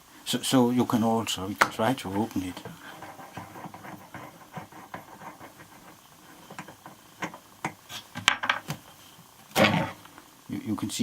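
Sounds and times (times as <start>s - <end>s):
clicks and knocks of unscrewing: 2.5s - 9.9s.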